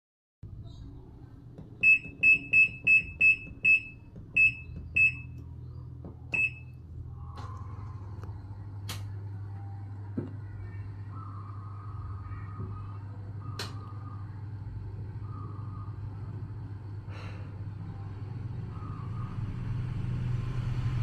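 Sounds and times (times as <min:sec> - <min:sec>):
low hum: 0:00.4 - 0:21.0
washing machine beeps: 0:01.8 - 0:05.4, 0:06.3 - 0:06.8.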